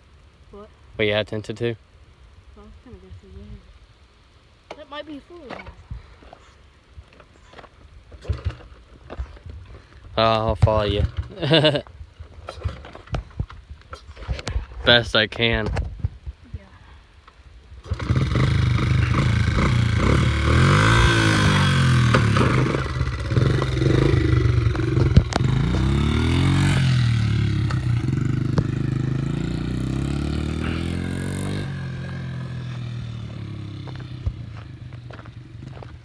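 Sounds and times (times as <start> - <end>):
dirt bike engine revving: 17.8 - 36.0.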